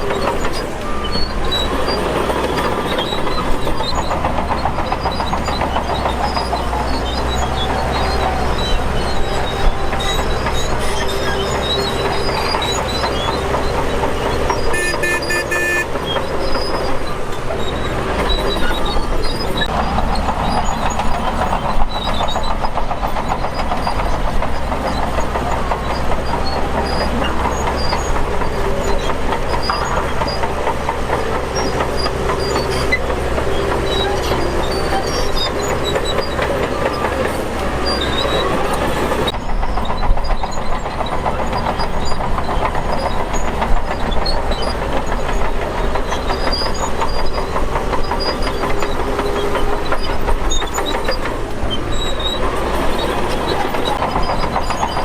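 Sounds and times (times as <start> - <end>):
bulldozer engine drone: 0.0 - 55.0
high squeal: 0.0 - 55.0
steel tracks clanking: 0.0 - 55.0.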